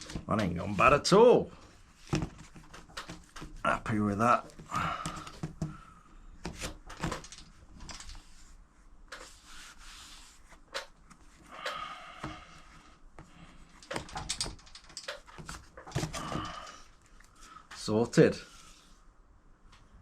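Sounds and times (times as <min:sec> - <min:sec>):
rubbing on plastic: 0:08.1 - 0:11.5.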